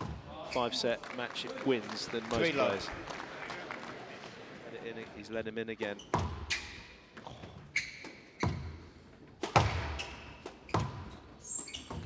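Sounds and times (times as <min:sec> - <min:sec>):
shoes squeaking on floor: 0:05.9 - 0:08.9, 0:09.5 - 0:12.0
squash ball hits: 0:09.4 - 0:11.1.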